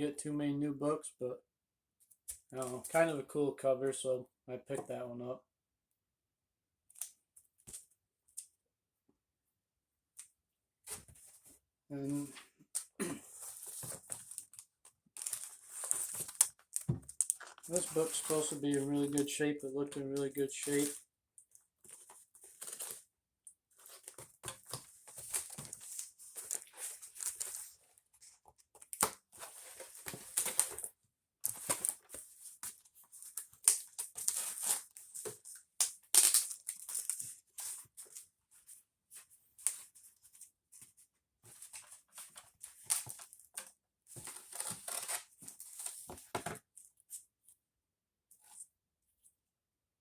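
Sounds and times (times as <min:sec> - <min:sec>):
packing material crinkling and tearing: 0:15.2 - 0:19.4, 0:33.2 - 0:37.4.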